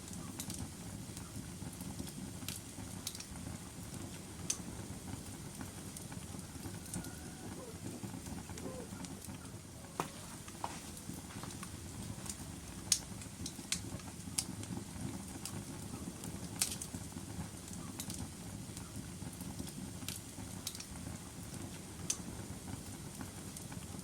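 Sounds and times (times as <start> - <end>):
log fire crackling: 0.0 - 24.0.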